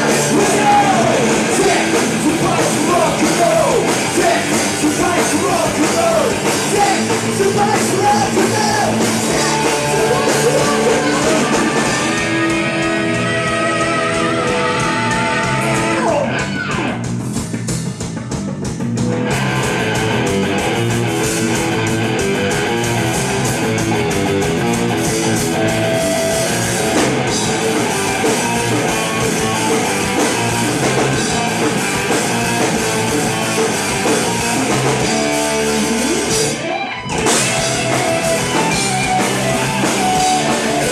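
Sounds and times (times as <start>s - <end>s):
person singing: 0.0s - 12.6s
distorted electric guitar: 0.0s - 40.9s
drum kit: 0.0s - 40.9s.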